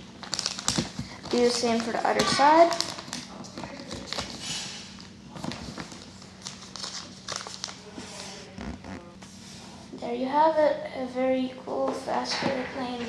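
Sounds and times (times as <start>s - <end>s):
paper rustling and creasing: 0.2s - 9.7s.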